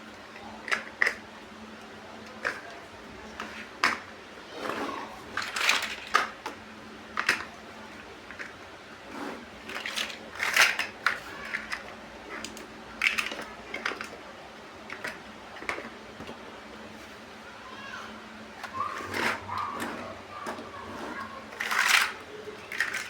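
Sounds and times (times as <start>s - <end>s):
plastic bricks clicking and clattering: 0.6s - 1.2s, 2.2s - 2.8s, 5.3s - 6.6s, 7.2s - 7.5s, 9.6s - 14.2s, 14.9s - 16.4s, 18.6s - 23.0s.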